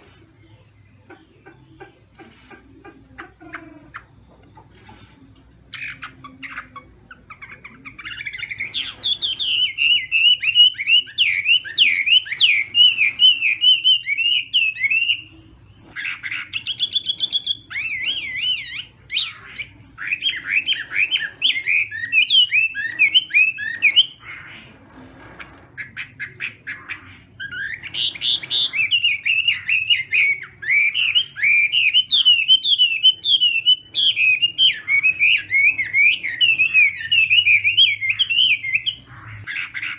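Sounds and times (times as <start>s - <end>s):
bird singing whistled phrases: 27.3s - 39.9s.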